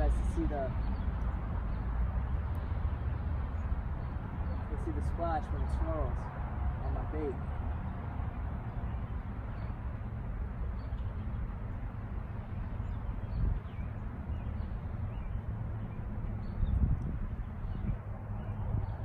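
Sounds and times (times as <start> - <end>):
wind rumble on microphone: 12.6 - 19.0.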